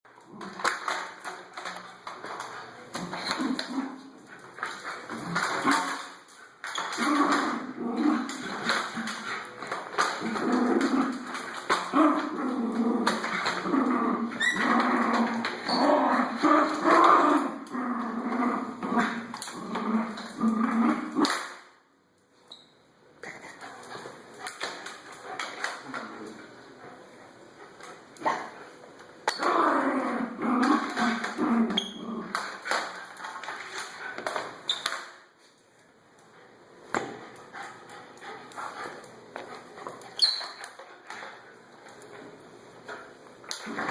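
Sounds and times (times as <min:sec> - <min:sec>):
dog growling: 0:10.2 - 0:21.2.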